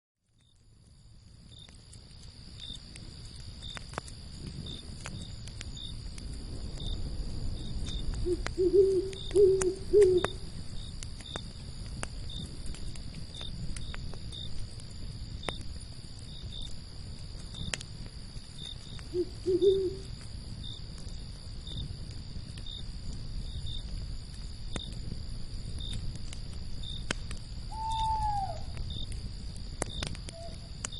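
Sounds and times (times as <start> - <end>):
campfire crackling and popping: 0.2 - 30.9
crickets chirping: 0.3 - 30.9
owl hooting: 8.2 - 10.4, 19.1 - 20.1, 27.7 - 28.8, 30.3 - 30.7.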